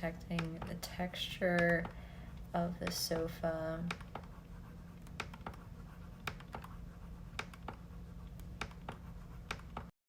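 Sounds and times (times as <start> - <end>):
low steady hum: 0.0 - 9.9
mouse and keyboard clicks: 2.8 - 4.3, 5.0 - 7.8, 8.4 - 9.9.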